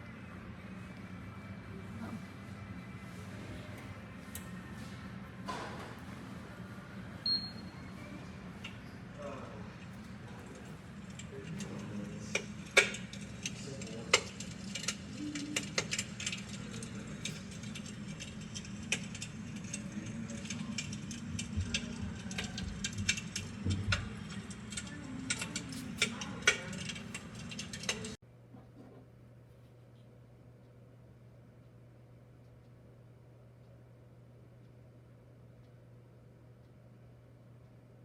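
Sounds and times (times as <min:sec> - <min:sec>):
steady low hum: 0:00.0 - 0:38.0
simulated fire crackling: 0:09.8 - 0:28.2.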